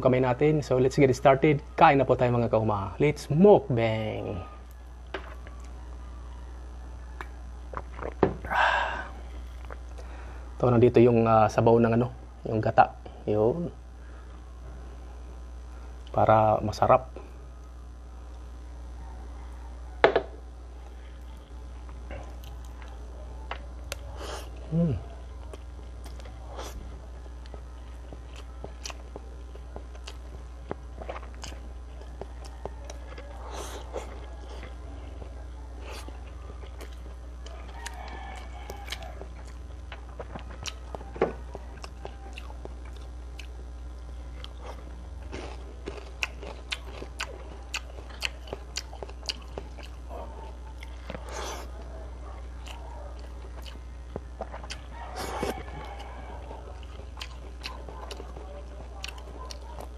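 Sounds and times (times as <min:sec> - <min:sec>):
steady low hum: 0:00.0 - 0:59.9
person chewing crispy food: 0:07.0 - 0:10.3, 0:20.8 - 0:59.9.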